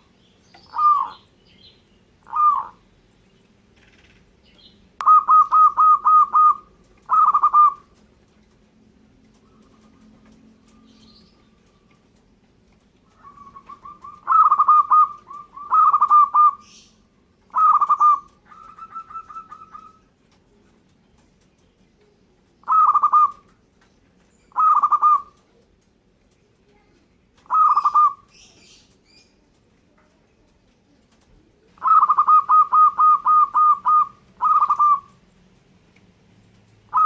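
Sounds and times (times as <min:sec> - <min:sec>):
dove cooing: 0:00.0 - 0:01.2, 0:02.2 - 0:02.8, 0:05.0 - 0:08.0, 0:13.0 - 0:16.9, 0:17.5 - 0:20.1, 0:22.6 - 0:23.5, 0:24.5 - 0:25.7, 0:27.4 - 0:28.8, 0:31.2 - 0:35.2.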